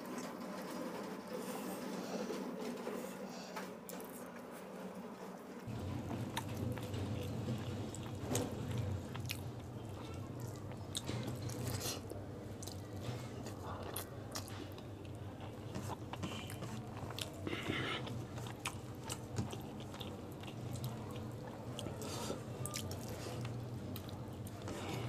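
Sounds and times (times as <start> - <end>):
close chewing with wet smacks: 12.6 - 12.9, 13.7 - 24.9.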